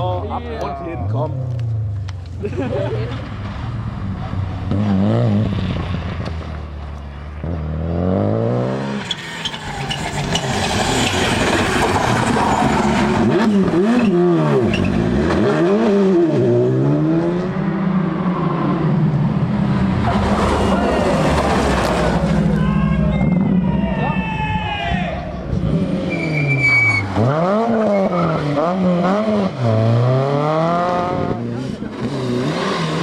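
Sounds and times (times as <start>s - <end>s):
rally car engine revving: 1.0s - 23.8s, 25.3s - 33.0s
loud rushing noise: 19.6s - 26.2s.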